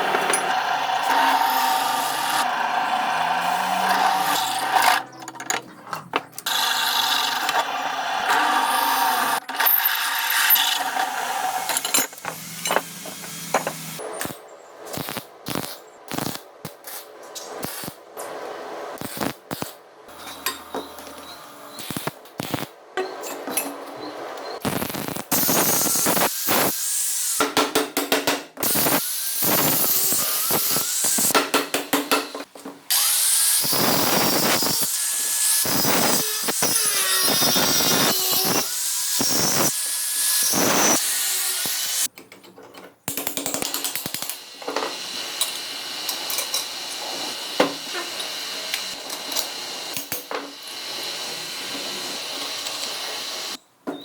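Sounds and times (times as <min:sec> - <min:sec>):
power tool cutting metal: 0:00.0 - 0:05.1, 0:06.4 - 0:14.0, 0:25.3 - 0:27.4, 0:28.6 - 0:31.4, 0:32.9 - 0:42.1, 0:44.3 - 0:53.6.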